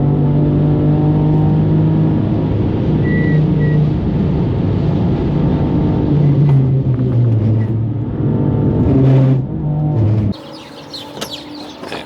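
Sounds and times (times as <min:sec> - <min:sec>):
car engine running: 0:10.4 - 0:12.0.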